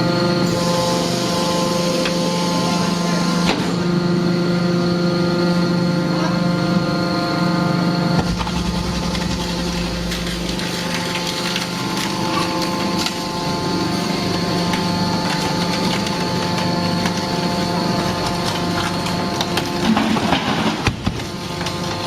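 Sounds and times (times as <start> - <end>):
pump motor hum: 0.0 - 22.0
metal cracking and creaking: 8.2 - 22.0.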